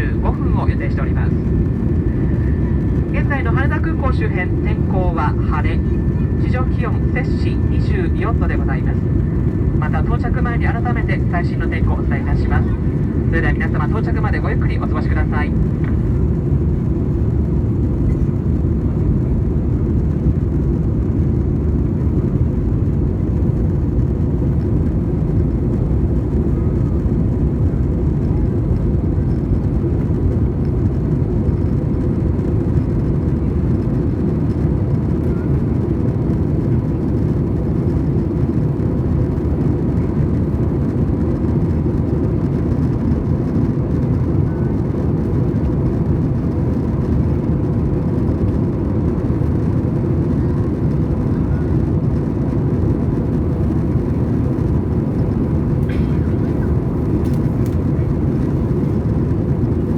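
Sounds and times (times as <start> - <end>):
jet engine and airflow drone: 0.0 - 59.9.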